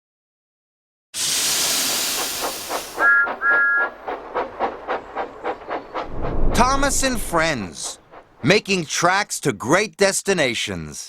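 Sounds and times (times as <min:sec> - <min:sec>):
steam hissing: 0:01.2 - 0:08.5
steam locomotive chuffing: 0:01.2 - 0:09.0
two-note train whistle toots: 0:03.0 - 0:04.0.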